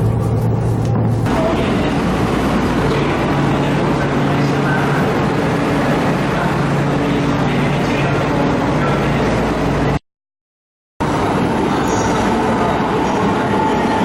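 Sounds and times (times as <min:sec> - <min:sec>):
vehicle running rumble: 0:00.0 - 0:10.0.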